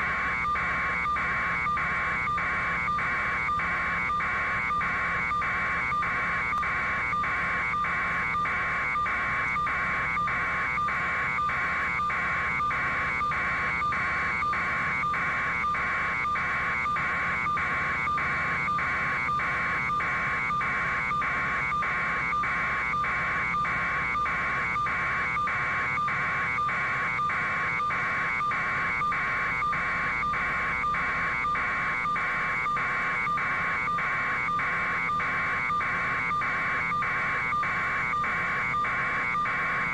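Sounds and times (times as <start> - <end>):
electronic alarm buzzer pulsing: 0.0 - 39.9.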